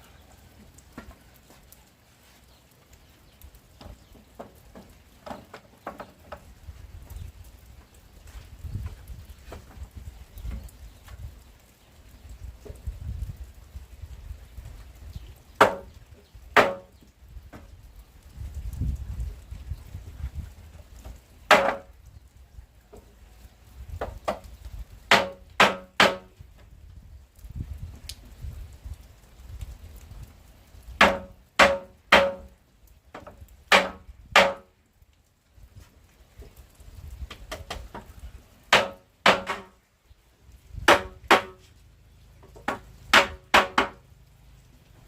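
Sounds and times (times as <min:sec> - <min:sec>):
hand tool striking wood: 0:15.6 - 0:15.9, 0:16.6 - 0:16.9, 0:21.5 - 0:21.9, 0:25.1 - 0:26.3, 0:31.0 - 0:32.5, 0:33.2 - 0:34.7, 0:38.7 - 0:39.8, 0:40.9 - 0:41.6, 0:42.6 - 0:44.0.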